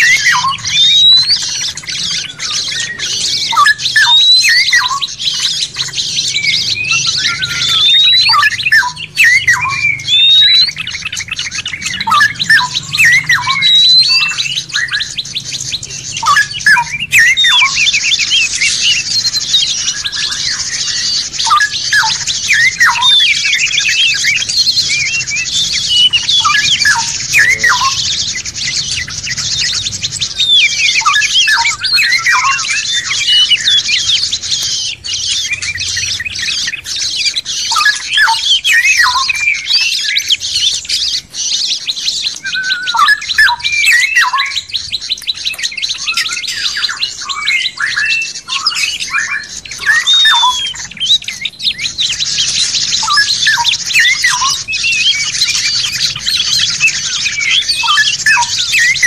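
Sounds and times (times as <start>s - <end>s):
high-pitched trilling chatter: 0.0s - 59.0s
songbirds chirping and whistling: 0.0s - 59.0s.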